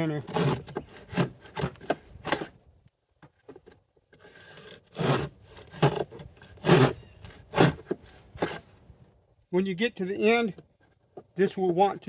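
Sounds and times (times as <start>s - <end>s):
plane rasping along wood: 0.2s - 2.5s, 4.3s - 8.6s.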